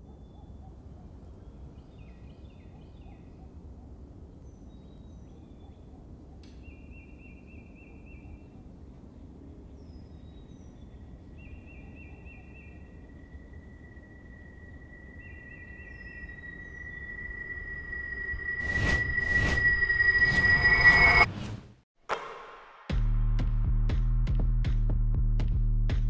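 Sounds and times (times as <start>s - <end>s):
small birds chirping: 0.0s - 17.8s
thin high tone: 12.3s - 21.3s.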